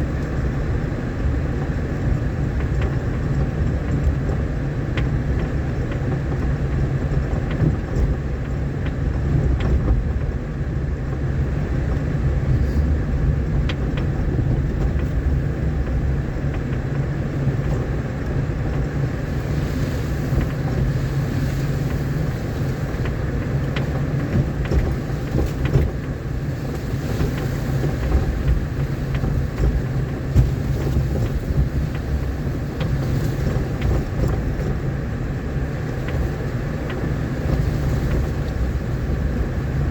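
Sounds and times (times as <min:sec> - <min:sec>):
road rumble: 0:00.0 - 0:39.9
vehicle engine running: 0:00.0 - 0:39.9
small knocks and rattles: 0:13.5 - 0:34.9.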